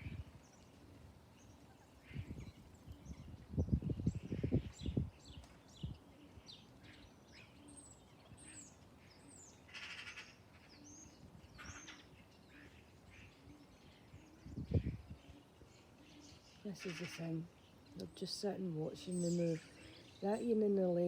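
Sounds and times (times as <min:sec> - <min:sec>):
small birds chirping: 0:00.0 - 0:21.0
harsh raspy bird calls: 0:09.1 - 0:13.7, 0:14.9 - 0:18.0.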